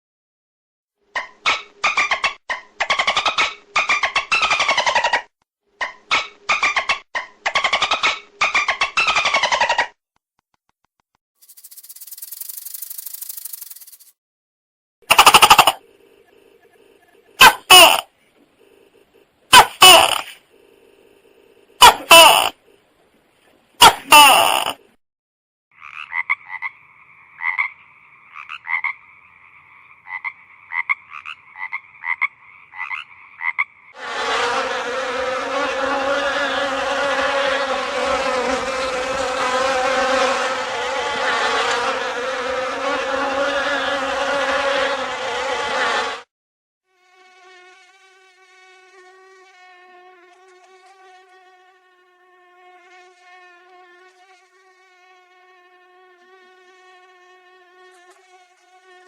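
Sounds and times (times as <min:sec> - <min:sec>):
short croaking calls: 0:15.1 - 0:22.8, 0:23.8 - 0:24.9, 0:25.8 - 0:34.0
loud buzzing drone: 0:34.0 - 0:46.3.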